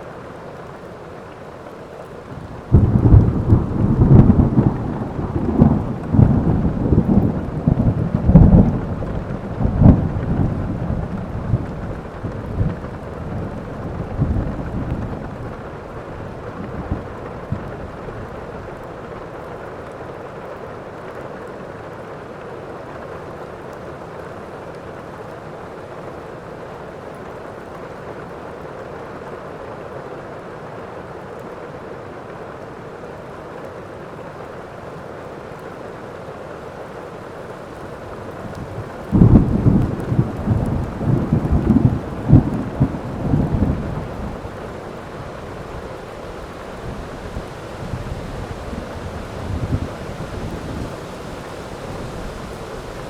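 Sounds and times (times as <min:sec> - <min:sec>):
heavy rain: 0:00.0 - 0:53.0
thunder clap rumbling: 0:02.3 - 0:18.4, 0:38.4 - 0:53.0.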